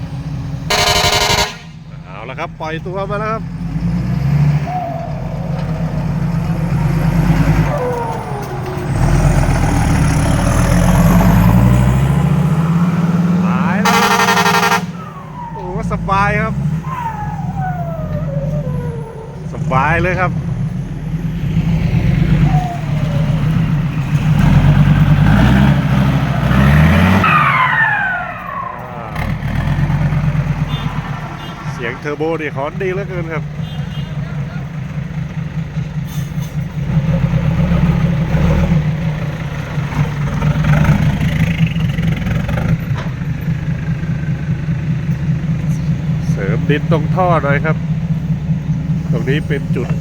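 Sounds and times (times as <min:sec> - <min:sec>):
diesel truck engine running hard: 0:00.0 - 0:50.0
turbo whine: 0:00.7 - 0:01.8, 0:13.8 - 0:18.2.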